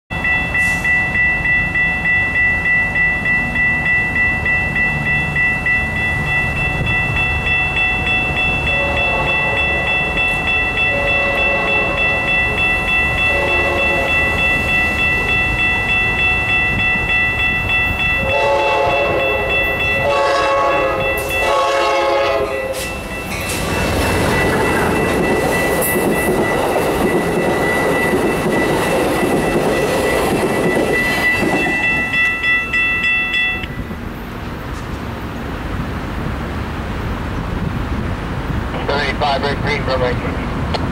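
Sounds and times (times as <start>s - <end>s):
crossing warning bells ringing: 0.1s - 40.9s
train passing at speed: 0.1s - 40.9s
train horn blasts: 8.7s - 10.0s, 10.8s - 12.2s, 13.2s - 14.3s, 18.2s - 23.0s.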